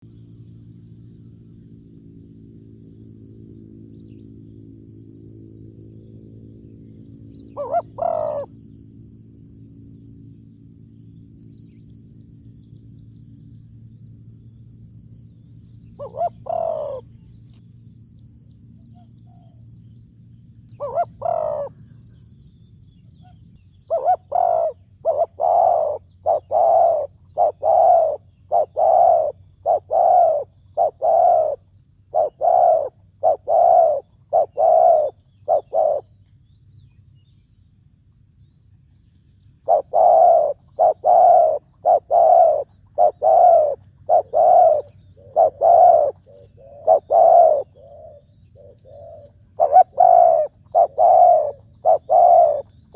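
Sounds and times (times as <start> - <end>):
dove cooing: 7.5 - 8.6, 16.0 - 17.1, 20.8 - 21.9, 23.9 - 36.1, 39.6 - 52.9.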